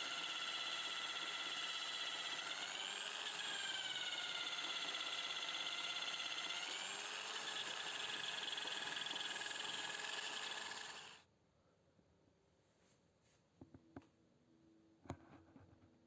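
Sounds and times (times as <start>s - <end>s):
small power tool whining: 0.0s - 11.2s.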